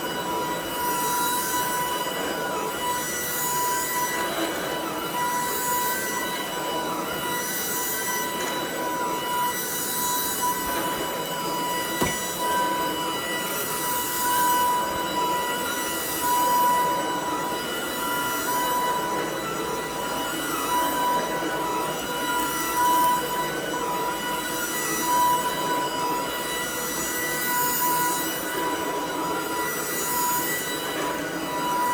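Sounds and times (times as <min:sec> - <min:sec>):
cordless vacuum running: 0:10.4 - 0:12.9.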